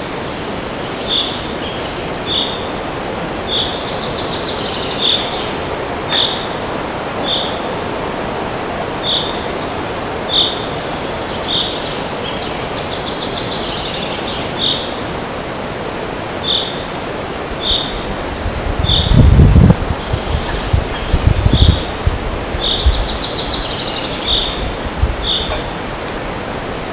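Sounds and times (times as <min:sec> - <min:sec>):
wind through trees: 0:00.0 - 0:26.9
bird chirping: 0:00.4 - 0:02.8, 0:03.4 - 0:07.8, 0:09.0 - 0:26.9
bird trill: 0:00.8 - 0:02.8, 0:03.4 - 0:07.8, 0:09.0 - 0:15.1, 0:16.2 - 0:19.2, 0:20.0 - 0:25.8.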